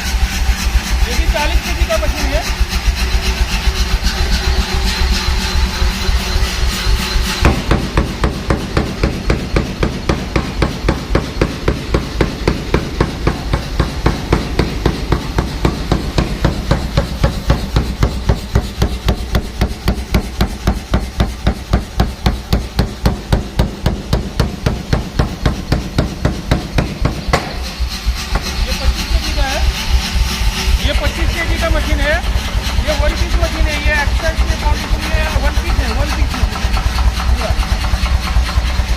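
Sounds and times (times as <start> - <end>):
forging hammer blows: 0.0 - 38.9
low machine hum: 0.0 - 38.9.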